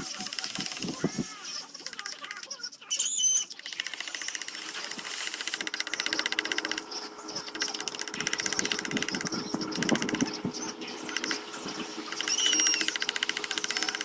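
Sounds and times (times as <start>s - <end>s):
small power tool chattering: 3.6s - 10.4s, 12.1s - 14.0s.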